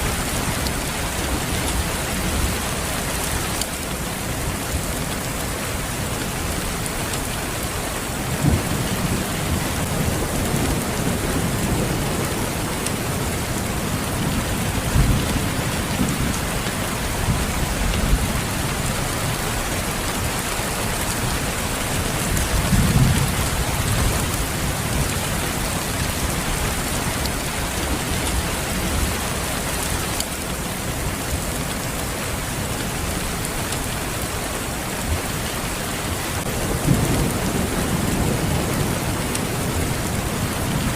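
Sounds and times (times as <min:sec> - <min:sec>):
steady rain falling: 0:00.0 - 0:40.9
distant thunder rumbling: 0:36.4 - 0:40.9.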